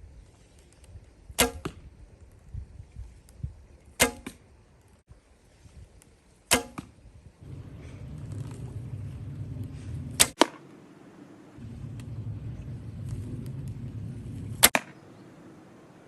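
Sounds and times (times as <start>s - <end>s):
bowstring snapping: 0.7s - 1.8s, 4.0s - 4.4s, 6.0s - 7.0s
arrow knocking: 1.4s - 1.8s, 4.0s - 4.4s, 6.5s - 7.0s, 14.6s - 15.0s.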